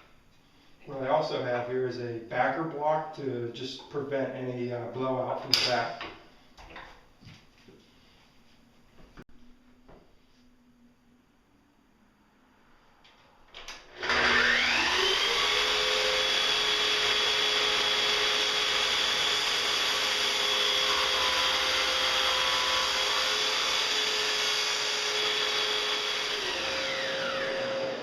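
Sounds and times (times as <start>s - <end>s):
miter saw whining: 13.9s - 28.0s.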